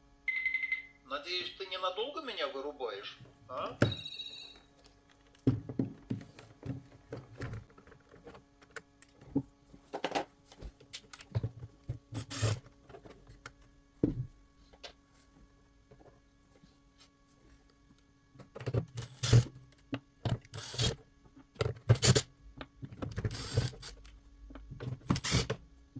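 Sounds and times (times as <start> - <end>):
plastic parts clicking and knocking: 18.4 - 25.6.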